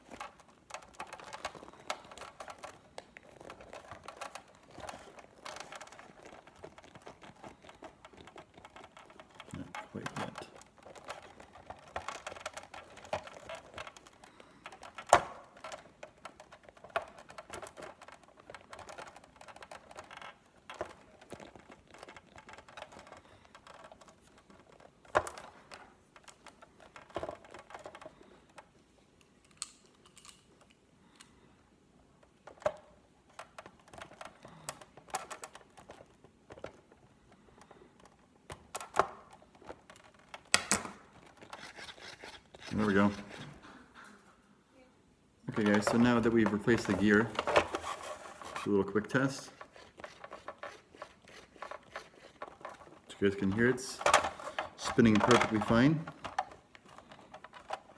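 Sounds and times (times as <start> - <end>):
plastic parts clicking and knocking: 0.0 - 43.8, 45.4 - 57.9.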